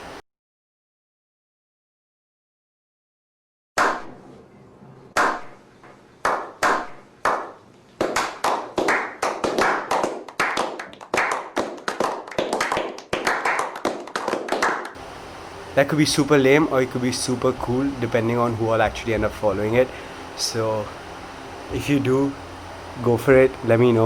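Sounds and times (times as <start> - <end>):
hand claps: 6.2 - 15.0.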